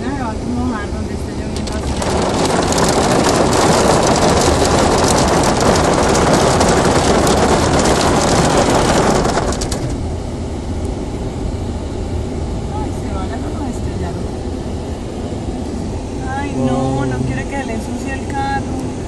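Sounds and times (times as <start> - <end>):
heavy hail pelting: 1.6 - 10.0.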